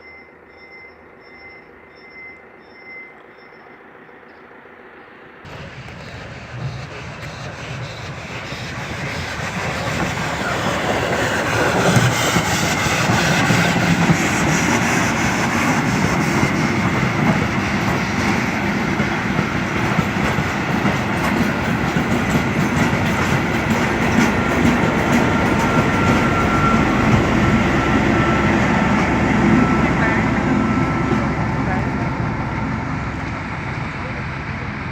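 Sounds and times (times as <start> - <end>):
train wheels clattering on rails: 5.5 - 34.9
high wheel squeal: 23.6 - 31.8.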